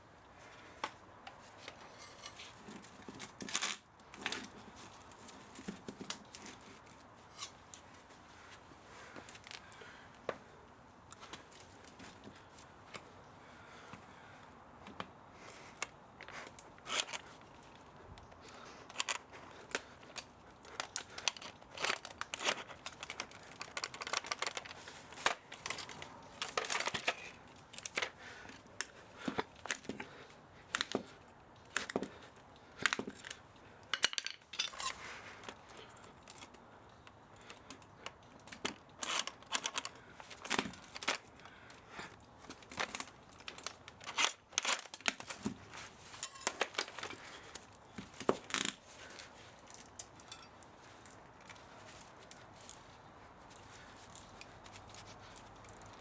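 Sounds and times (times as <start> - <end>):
tearing and scraping of parts: 1.3 - 8.0, 15.5 - 36.6, 37.4 - 41.8, 42.4 - 56.0
metallic clicks and clinks: 32.9 - 35.1, 46.2 - 47.3, 49.7 - 50.7.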